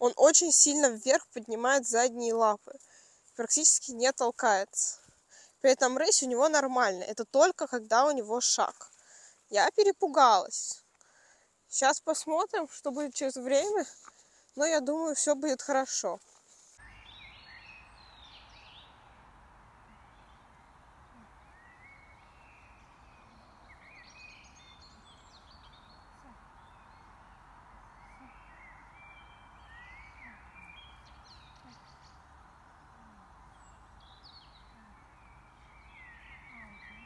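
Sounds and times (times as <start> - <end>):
steady outdoor hiss: 0.0 - 37.0
small birds chirping: 16.8 - 37.0.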